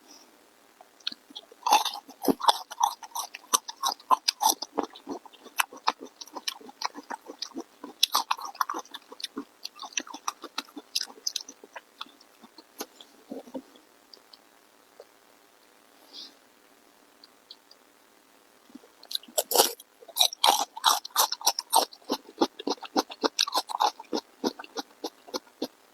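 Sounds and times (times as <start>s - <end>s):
person chewing food: 0.9s - 14.4s, 18.7s - 25.8s.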